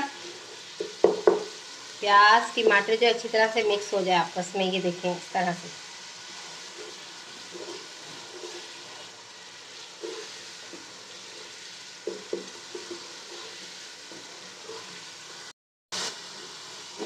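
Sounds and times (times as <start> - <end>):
masala sizzling in oil: 0.0 - 17.0
spatula scraping and knocking pot: 0.2 - 1.6, 6.5 - 9.1, 9.8 - 15.1.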